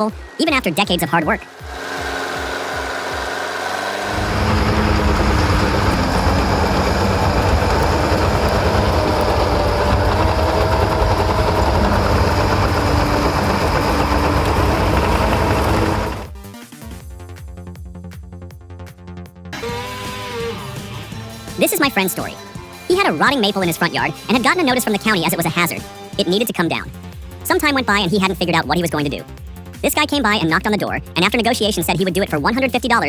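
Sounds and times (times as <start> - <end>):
heavy machine engine running: 1.4 - 16.4.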